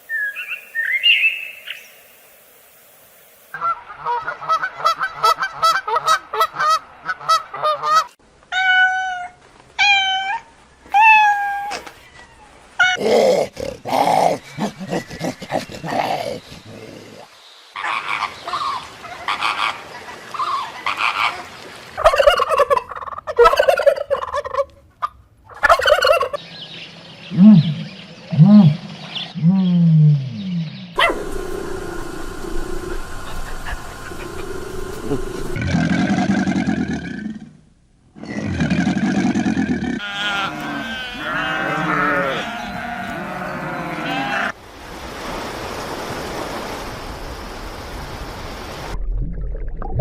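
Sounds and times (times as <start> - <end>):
animal calls: 8.5 - 19.7, 31.0 - 35.6, 39.6 - 44.6.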